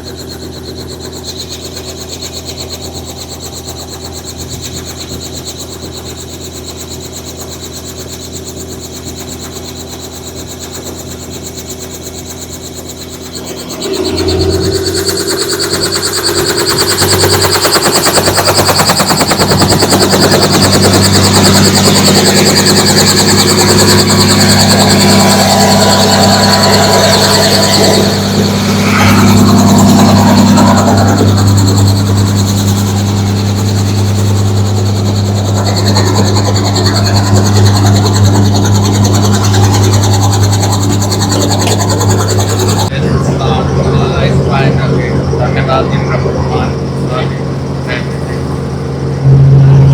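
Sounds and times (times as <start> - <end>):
helicopter rotor beats: 0.0 - 49.9
high turbine whine: 0.0 - 49.9.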